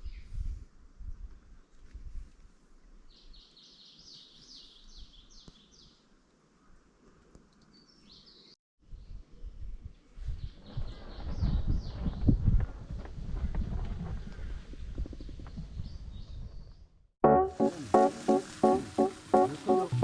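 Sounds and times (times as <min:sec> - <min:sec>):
songbird singing: 0:03.1 - 0:06.8, 0:07.6 - 0:09.6.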